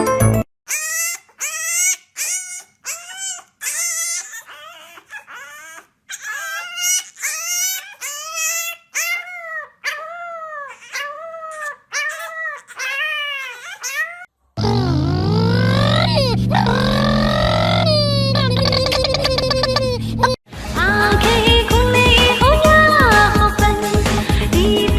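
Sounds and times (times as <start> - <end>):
dog whining: 0.7 - 20.4.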